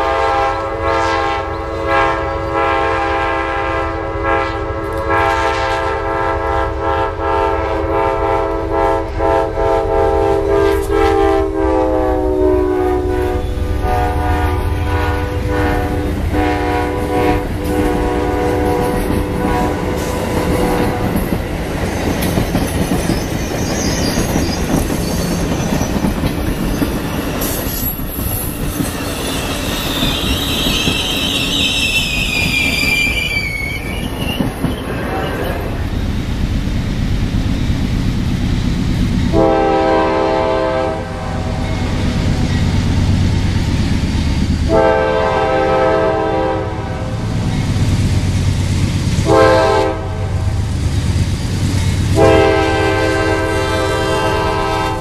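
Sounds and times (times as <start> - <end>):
locomotive air horn blast: 0.0 - 21.2, 39.3 - 41.7, 44.7 - 47.3, 49.2 - 50.6, 52.1 - 55.0
train cars rumbling and clattering: 0.0 - 55.0.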